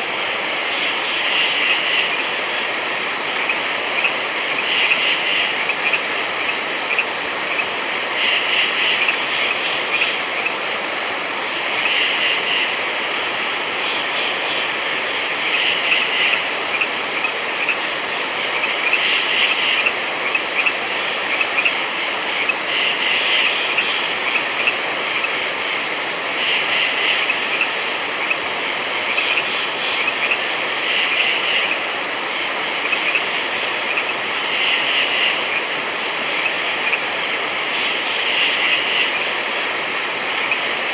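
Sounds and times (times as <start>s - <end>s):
frog chorus: 0.0s - 40.9s
louder frog call: 3.4s - 10.6s, 11.7s - 12.8s, 13.8s - 21.8s, 26.3s - 28.4s, 29.0s - 31.8s.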